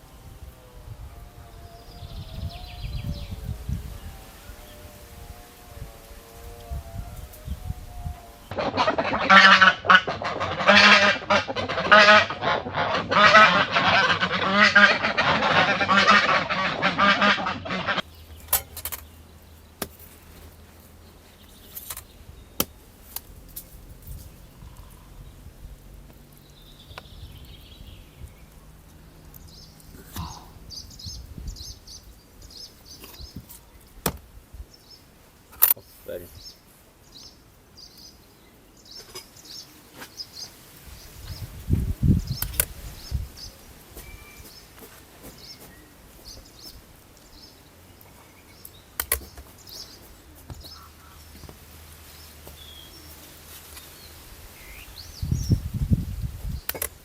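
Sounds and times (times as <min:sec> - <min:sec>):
waterfowl flock calling: 0:08.2 - 0:18.1.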